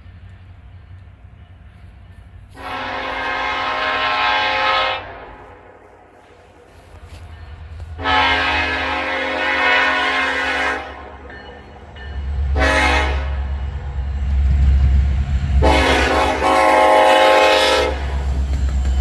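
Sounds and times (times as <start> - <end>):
train rumbling: 0.0 - 19.0
locomotive air horn blasts: 2.5 - 5.9, 8.0 - 11.2, 12.5 - 13.6, 15.6 - 18.3.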